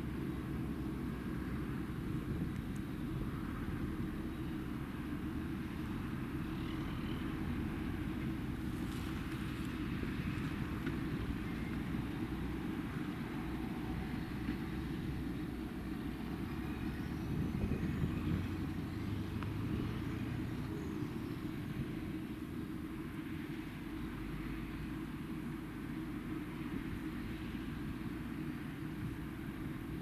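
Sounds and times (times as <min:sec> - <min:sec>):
diesel engine droning: 0:00.0 - 0:30.0.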